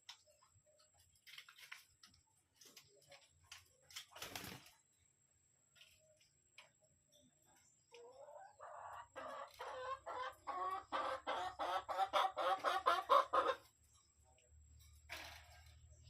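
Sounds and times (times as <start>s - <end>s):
hen cackling: 8.1s - 13.6s.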